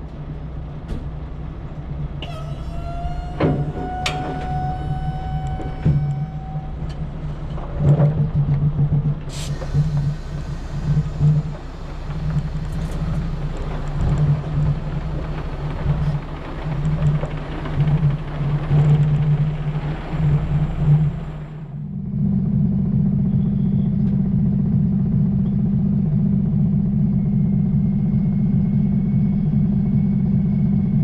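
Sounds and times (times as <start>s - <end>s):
truck diesel engine droning: 0.0s - 31.0s
held tone with overtones: 2.2s - 7.0s.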